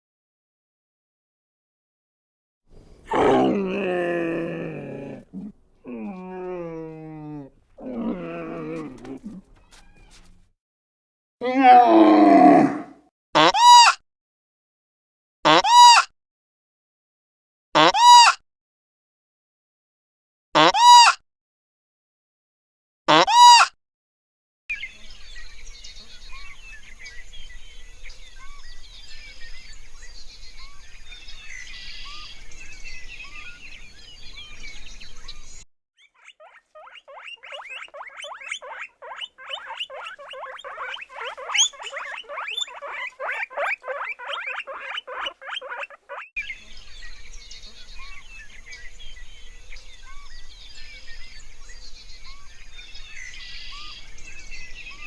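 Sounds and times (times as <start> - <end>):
rapid falling animal calls: 2.8 - 10.4, 36.2 - 46.3
small bird chirps: 2.9 - 10.4, 30.0 - 55.0.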